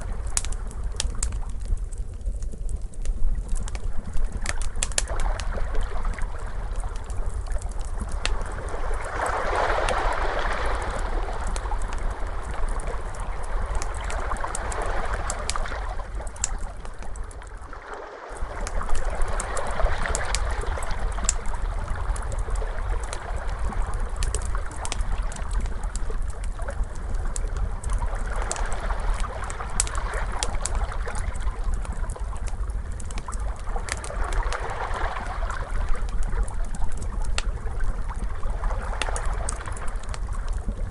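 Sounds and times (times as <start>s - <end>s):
wood fire crackling: 0.0s - 17.7s, 18.3s - 40.9s
ocean waves washing in: 8.5s - 16.2s, 17.6s - 21.2s.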